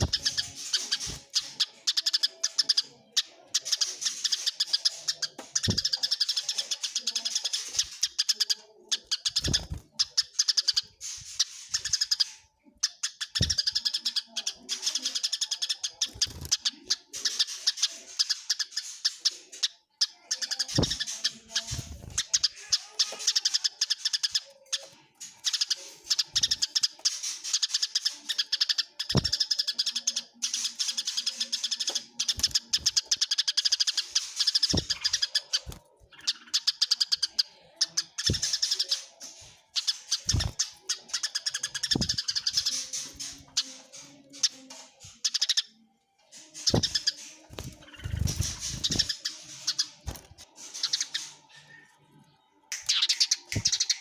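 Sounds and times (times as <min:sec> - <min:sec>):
sparrows chirping rapidly: 0:00.0 - 0:51.8, 0:52.7 - 0:54.0.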